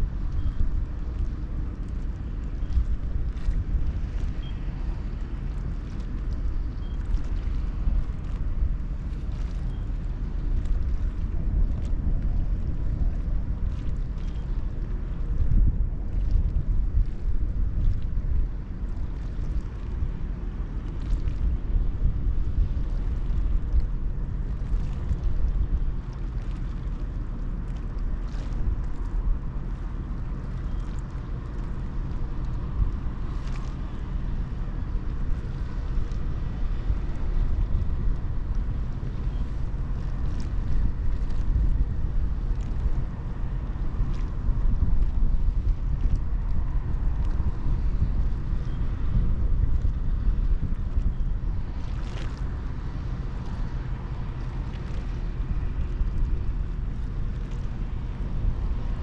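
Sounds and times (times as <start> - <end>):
ferry engine low rumble: 0.0 - 59.0
wind buffeting microphone: 0.0 - 59.0.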